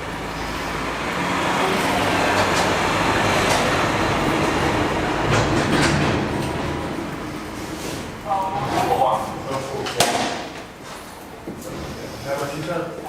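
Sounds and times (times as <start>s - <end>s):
train rumbling: 0.0s - 9.7s.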